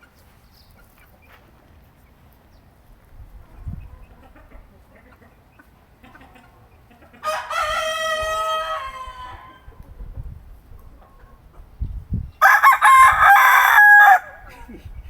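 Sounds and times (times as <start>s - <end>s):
rooster crowing: 7.2s - 9.5s, 12.4s - 14.6s.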